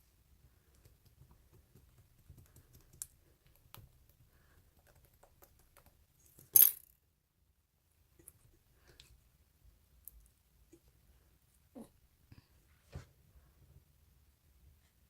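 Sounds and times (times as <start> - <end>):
small objects clicking and tapping: 0.7 - 7.0.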